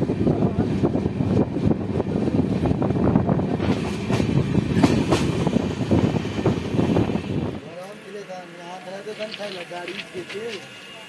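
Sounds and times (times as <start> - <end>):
train wheels clickety-clack: 3.5 - 7.0, 8.8 - 11.0.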